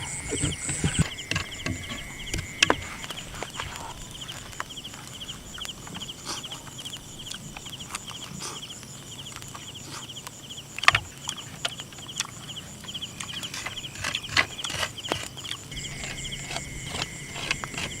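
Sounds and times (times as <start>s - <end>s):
steady high tone: 0.0s - 3.6s, 15.7s - 18.0s
insects chirping: 0.0s - 18.0s.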